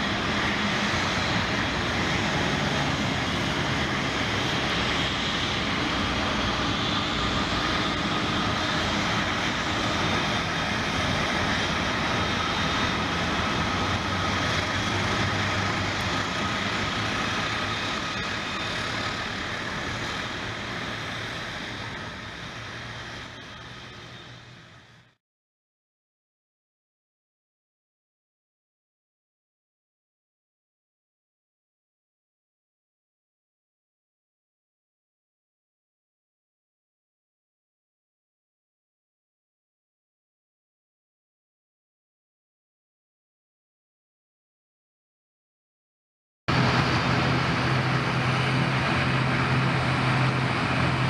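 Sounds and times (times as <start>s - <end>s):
jet engines running: 0.0s - 25.2s, 46.5s - 51.0s.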